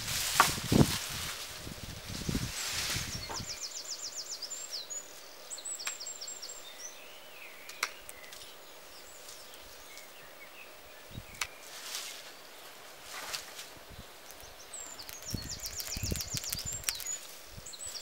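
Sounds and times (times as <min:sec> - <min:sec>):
songbirds trilling and chirping: 0:01.5 - 0:18.0
sharp snaps: 0:07.7 - 0:08.4, 0:14.2 - 0:17.3.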